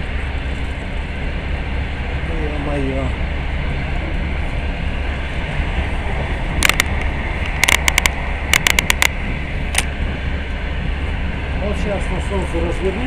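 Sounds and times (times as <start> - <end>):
train rumbling inside carriage: 0.0 - 13.0
sharp clicks: 6.6 - 9.9.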